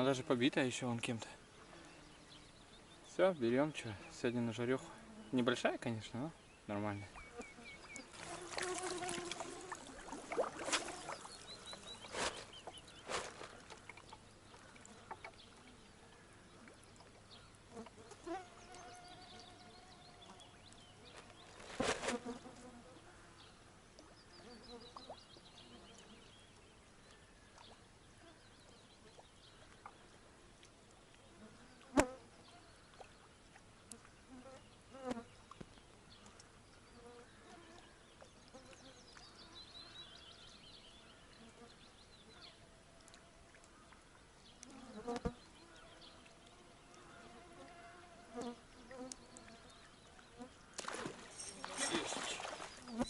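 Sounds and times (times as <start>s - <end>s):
flying insects buzzing: 7.2s - 13.7s, 17.7s - 23.1s, 44.6s - 53.0s.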